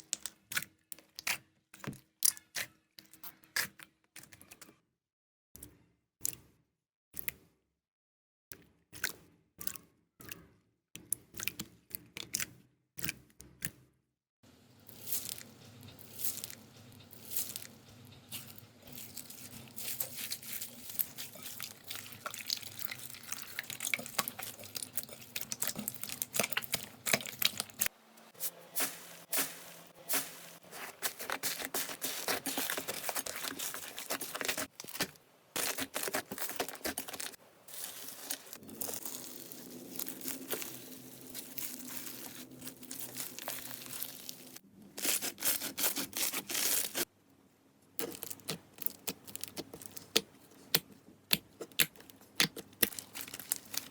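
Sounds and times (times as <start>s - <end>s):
slime crackling and popping: 18.3s - 27.9s, 28.8s - 47.1s, 48.0s - 53.9s.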